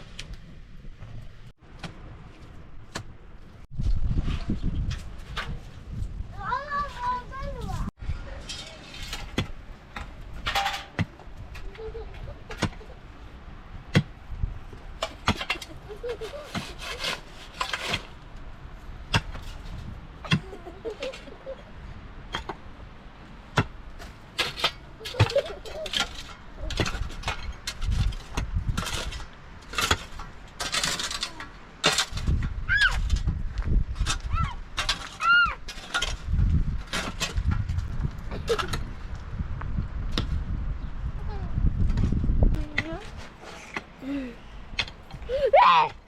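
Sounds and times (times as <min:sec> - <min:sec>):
scraping rustle: 0:03.6 - 0:13.0, 0:14.7 - 0:21.6, 0:23.9 - 0:39.2, 0:41.4 - 0:44.1.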